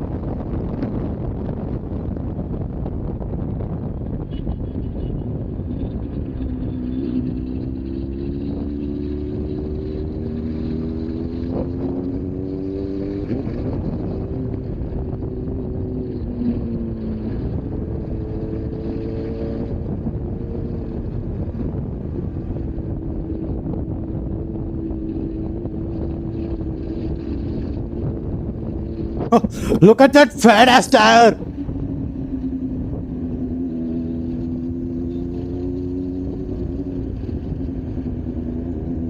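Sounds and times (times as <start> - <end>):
wind noise on microphone: 0.0 - 29.7, 31.4 - 39.0
motorcycle engine accelerating: 5.7 - 29.4, 31.4 - 39.0.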